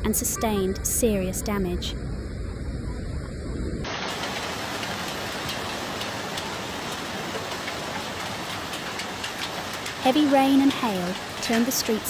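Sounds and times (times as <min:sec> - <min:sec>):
heavy rain pouring: 0:03.8 - 0:12.0.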